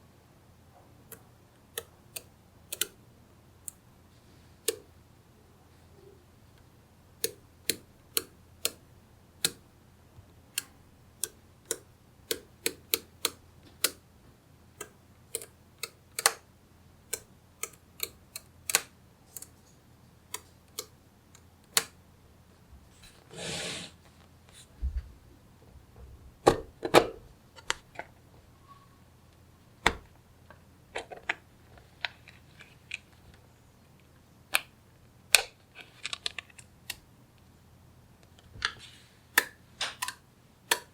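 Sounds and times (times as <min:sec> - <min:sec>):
magnetic balls clicking: 0:01.1 - 0:03.0, 0:07.2 - 0:09.7, 0:10.5 - 0:14.0, 0:39.4 - 0:40.9.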